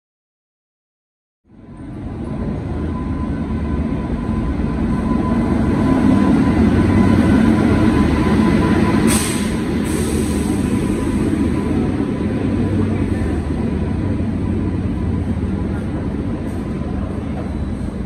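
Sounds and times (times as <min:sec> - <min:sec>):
train passing rumble: 0:01.5 - 0:18.0
brief hiss: 0:09.1 - 0:10.6.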